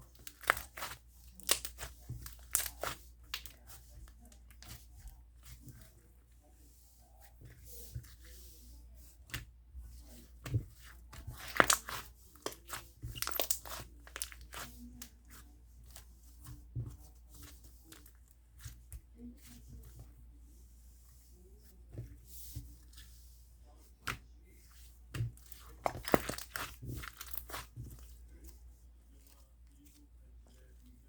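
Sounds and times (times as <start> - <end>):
slime squished by hand: 0.2 - 3.6, 10.5 - 15.1, 25.1 - 28.0.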